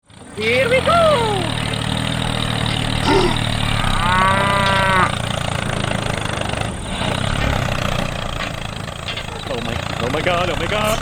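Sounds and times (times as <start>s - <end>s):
small motor humming: 0.1s - 8.8s
cow mooing: 3.0s - 5.4s.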